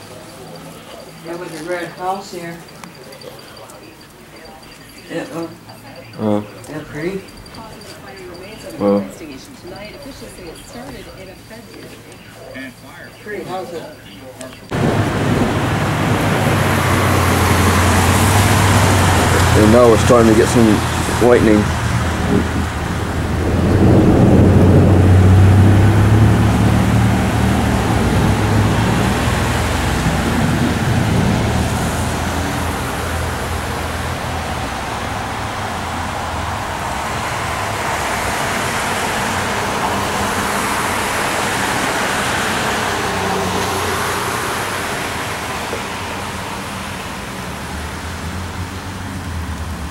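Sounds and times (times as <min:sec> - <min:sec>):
heavy rain hissing: 0:14.7 - 0:49.9
thunder rumble: 0:14.7 - 0:49.9.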